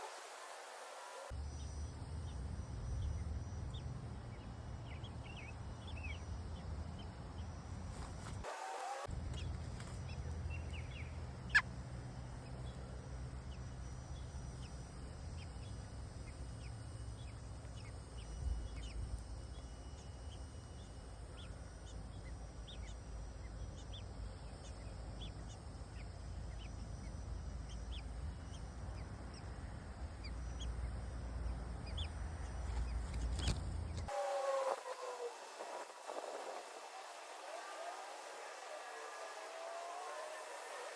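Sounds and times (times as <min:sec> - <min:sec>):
birds chirping: 0:02.9 - 0:40.9
steady low rumble: 0:09.1 - 0:34.1.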